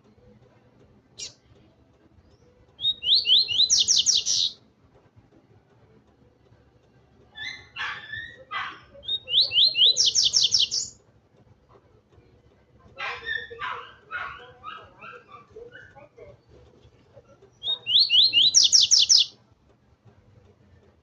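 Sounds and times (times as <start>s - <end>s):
bird singing whistled notes: 2.8s - 4.6s, 9.0s - 11.0s, 17.6s - 19.3s.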